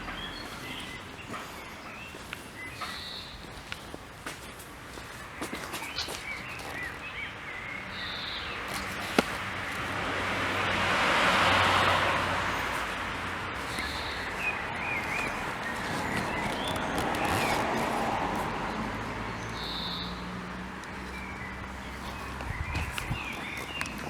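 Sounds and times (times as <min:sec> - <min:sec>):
birds chirping: 0:00.0 - 0:24.0
vehicle passing by: 0:07.7 - 0:24.0.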